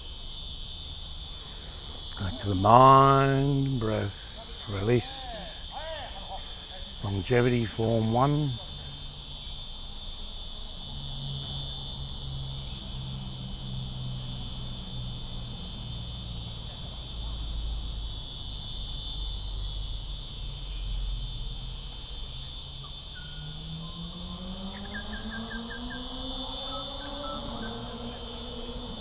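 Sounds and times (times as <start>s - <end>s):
insects buzzing shrilly: 0.0s - 29.0s.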